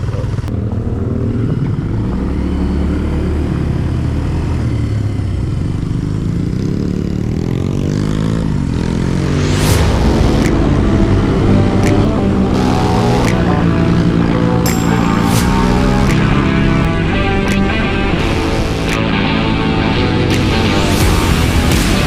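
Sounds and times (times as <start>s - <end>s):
off-road vehicle engine running: 0.0s - 22.0s
brief rushing noise: 9.2s - 16.9s.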